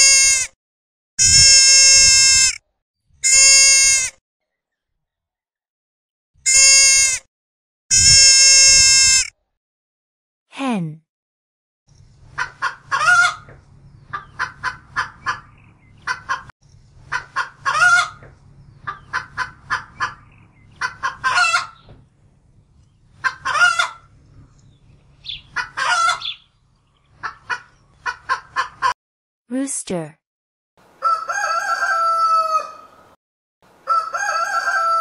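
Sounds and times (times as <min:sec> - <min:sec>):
hens clucking and cackling: 0:12.3 - 0:21.9, 0:23.1 - 0:24.2, 0:25.3 - 0:26.4, 0:27.1 - 0:29.0, 0:31.0 - 0:33.0, 0:33.8 - 0:35.0.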